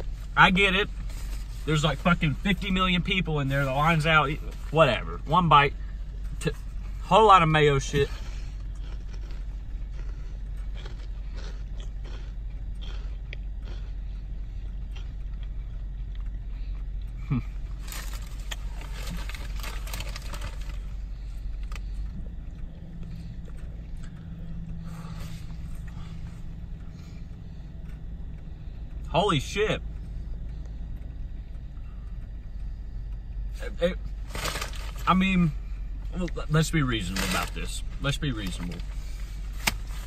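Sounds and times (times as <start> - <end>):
steady low hum: 0.0 - 40.0
man chewing: 8.0 - 29.1.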